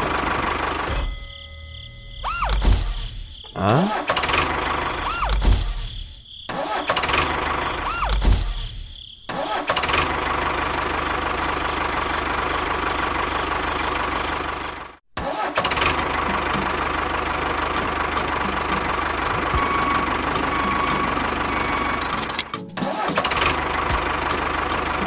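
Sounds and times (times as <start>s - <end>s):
small engine starting and running: 0.0s - 1.3s, 9.7s - 14.9s.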